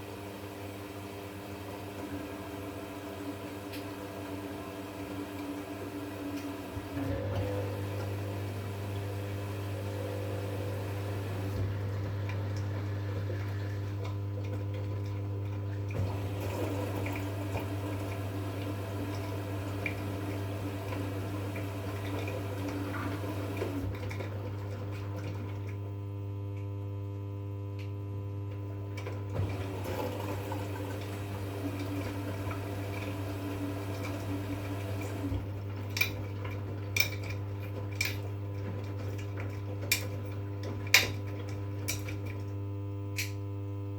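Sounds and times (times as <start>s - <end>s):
washing machine hum: 0.0s - 43.9s
water sloshing in drum: 29.2s - 42.6s.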